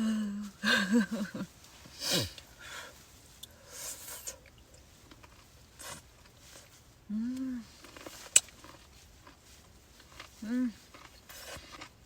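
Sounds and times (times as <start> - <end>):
soft breaths: 1.6 - 5.0
mouth and chewing sounds: 3.3 - 12.0
person sighing: 7.1 - 7.7.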